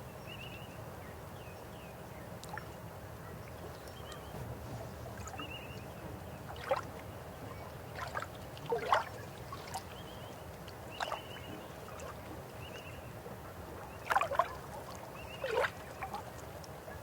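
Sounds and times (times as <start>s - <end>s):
gurgling water splashes: 3.5s - 17.0s
river water flowing: 4.9s - 17.0s.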